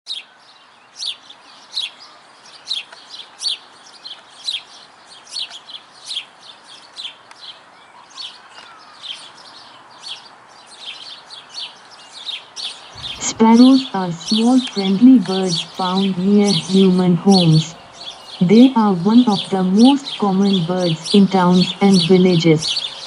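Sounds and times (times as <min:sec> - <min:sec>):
sparrow chirping: 0:08.2 - 0:23.0
faint background hiss: 0:11.2 - 0:23.0.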